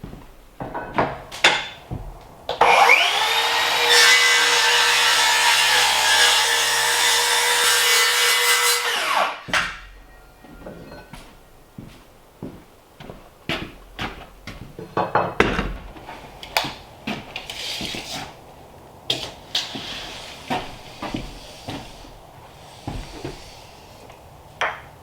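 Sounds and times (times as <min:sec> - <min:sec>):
hard objects knocking: 0:00.6 - 0:02.8.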